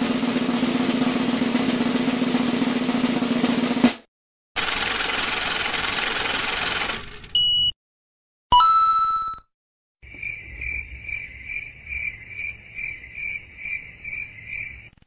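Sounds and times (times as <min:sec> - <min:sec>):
crickets chirping: 0:10.0 - 0:15.0.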